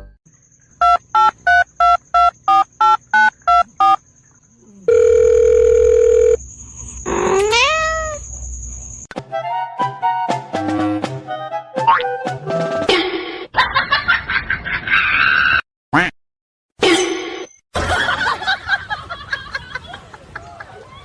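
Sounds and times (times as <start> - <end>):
dial tone: 4.9 - 6.4
cat meow: 7.1 - 8.2.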